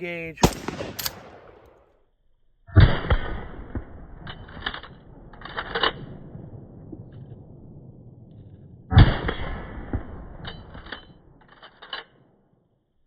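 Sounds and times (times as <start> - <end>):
shotgun blast: 0.4 - 1.9, 2.7 - 7.9, 8.9 - 10.4.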